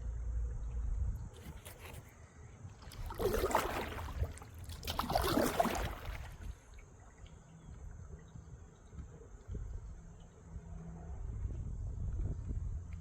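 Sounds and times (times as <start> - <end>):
paddle swishing through water: 1.3 - 7.3
water lapping: 1.4 - 8.2.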